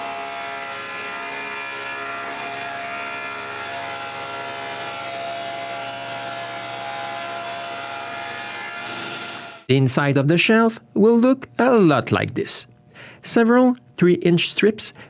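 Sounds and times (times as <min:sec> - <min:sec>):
power saw cutting wood: 0:00.0 - 0:09.7.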